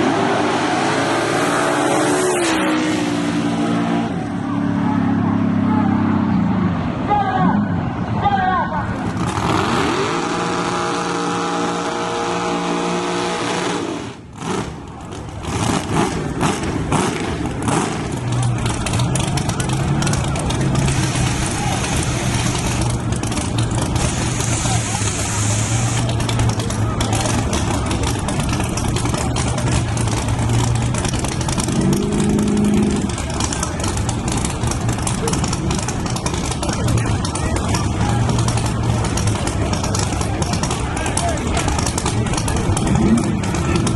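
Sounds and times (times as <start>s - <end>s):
pickup engine revving: 0.0s - 6.8s, 9.0s - 43.9s
exhaust pops and bangs: 14.4s - 43.9s.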